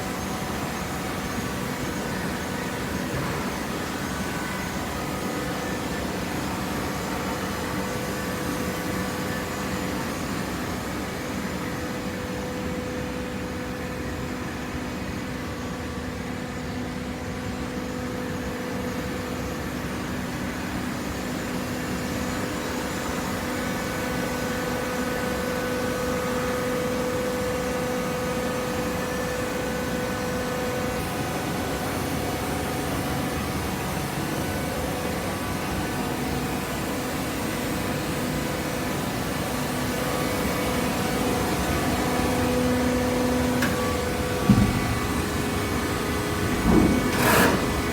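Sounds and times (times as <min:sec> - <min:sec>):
small gasoline engine humming: 0:38.4 - 0:47.9.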